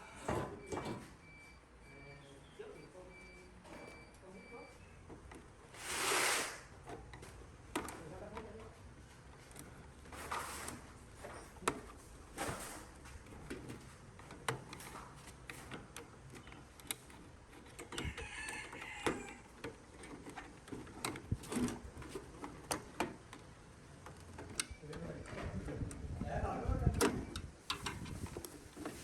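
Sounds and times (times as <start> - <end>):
short scraping: 5.8 - 6.7.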